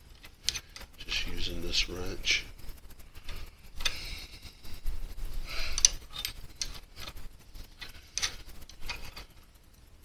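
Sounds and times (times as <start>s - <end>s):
wrench clinking and scraping: 0.2s - 2.4s, 5.6s - 9.5s.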